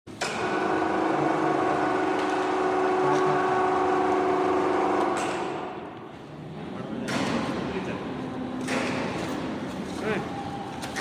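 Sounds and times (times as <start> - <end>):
machine motor whining: 0.3 - 5.5.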